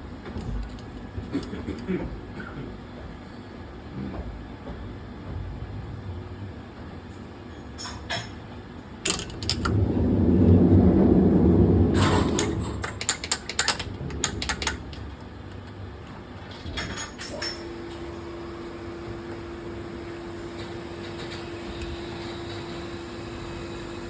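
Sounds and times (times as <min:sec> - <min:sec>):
low rumble: 0:09.2 - 0:13.2.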